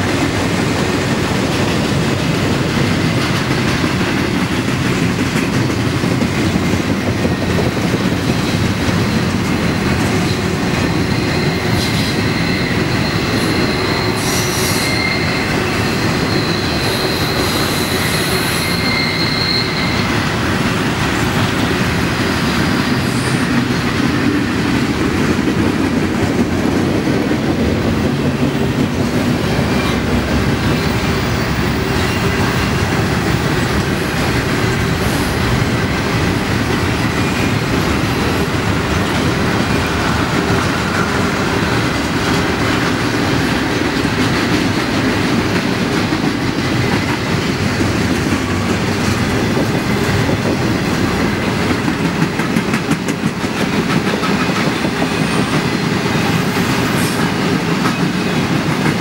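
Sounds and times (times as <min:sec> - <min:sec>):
steel wheels on rail: 0:00.0 - 0:59.0
high-pitched wheel squeal: 0:10.8 - 0:20.2.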